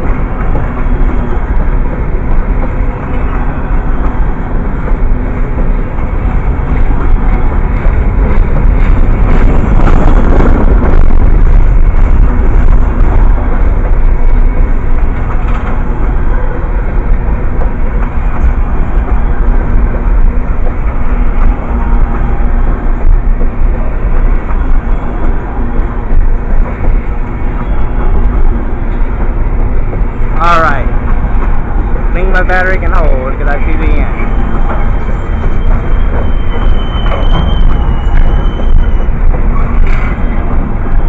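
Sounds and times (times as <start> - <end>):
train passing rumble: 0.0 - 41.0.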